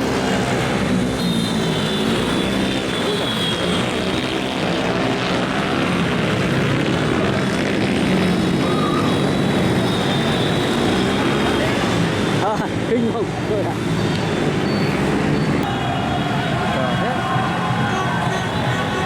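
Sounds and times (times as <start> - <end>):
motorbike engines droning: 0.0 - 19.0.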